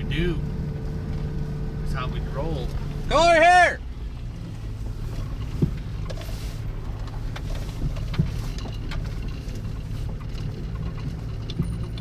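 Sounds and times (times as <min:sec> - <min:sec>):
vehicle engine running: 0:00.0 - 0:12.0
light clicks and knocks: 0:05.2 - 0:12.0.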